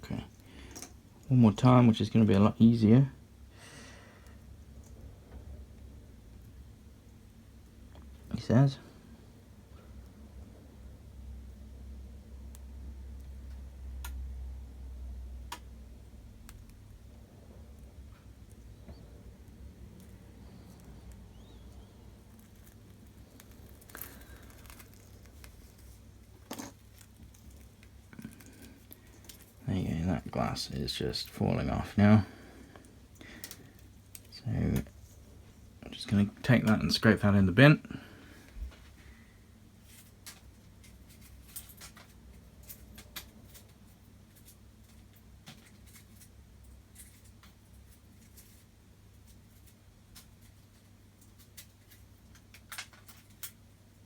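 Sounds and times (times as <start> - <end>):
low steady hum: 0.0 - 54.0
wire crackling and scraping: 17.7 - 31.4.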